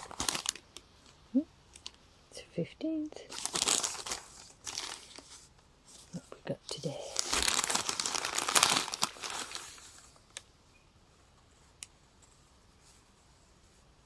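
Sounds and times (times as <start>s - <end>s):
wrapping crinkling and tearing: 0.0s - 1.2s, 3.3s - 10.4s.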